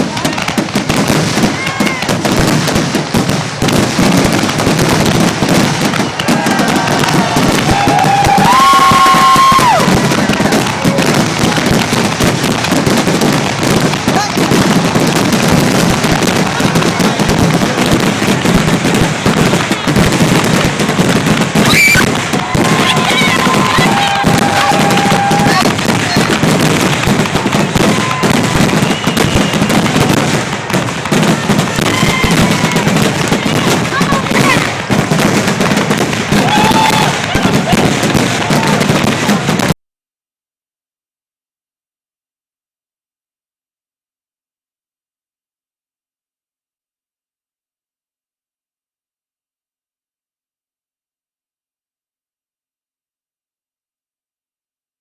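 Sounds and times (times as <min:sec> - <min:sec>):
fireworks bangs and crackling: 0:00.0 - 0:39.8.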